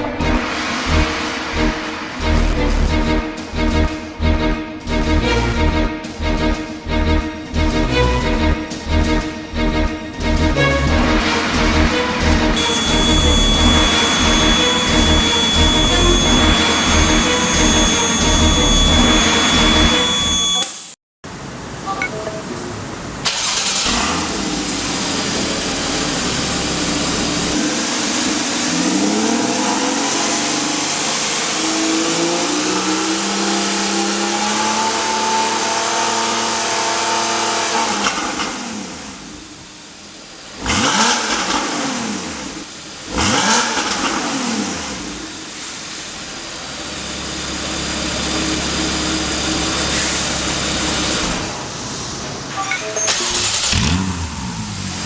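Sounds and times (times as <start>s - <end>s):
car engine revving: 0.0s - 7.2s, 7.8s - 20.6s, 22.4s - 39.6s, 40.3s - 51.8s, 53.2s - 55.0s
throttle blips: 12.6s - 20.9s.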